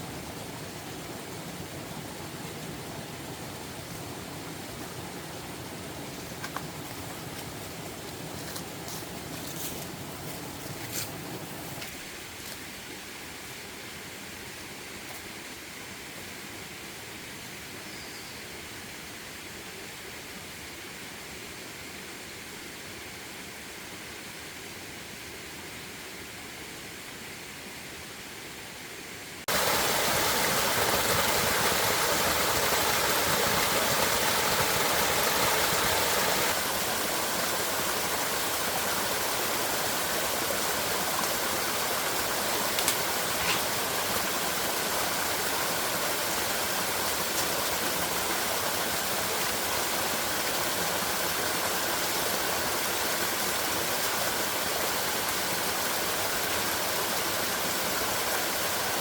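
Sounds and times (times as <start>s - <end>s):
running water rushing: 0.0s - 14.0s, 29.4s - 59.0s.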